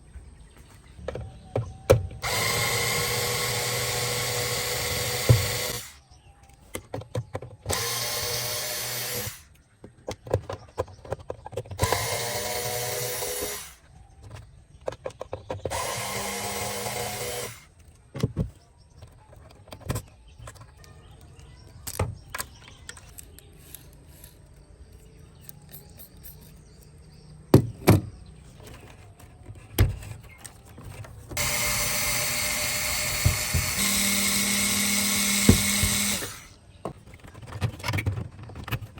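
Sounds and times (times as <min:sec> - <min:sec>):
small power drill running: 0:02.2 - 0:06.0, 0:07.7 - 0:09.5, 0:11.8 - 0:13.8, 0:15.7 - 0:17.7, 0:31.4 - 0:36.6
clicks and knocks from handling: 0:17.8 - 0:27.0.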